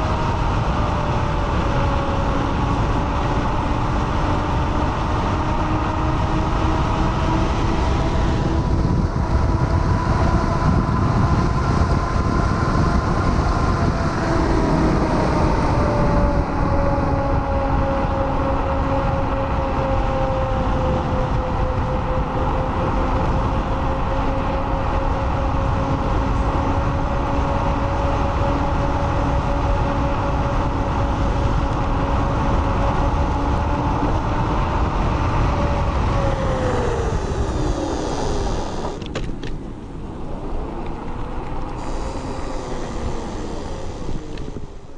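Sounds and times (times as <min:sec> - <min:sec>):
electric motor whine: 0:00.0 - 0:39.5, 0:40.2 - 0:44.9
tyre and road noise: 0:00.0 - 0:44.9
wind noise on microphone: 0:00.0 - 0:44.9.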